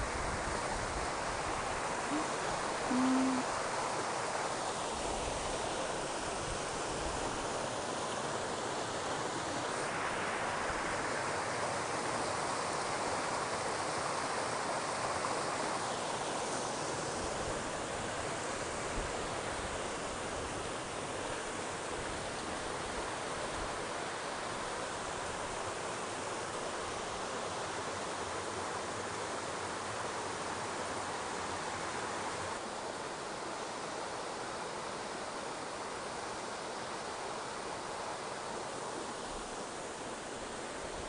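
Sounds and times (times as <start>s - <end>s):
stream rushing: 0.0s - 41.0s.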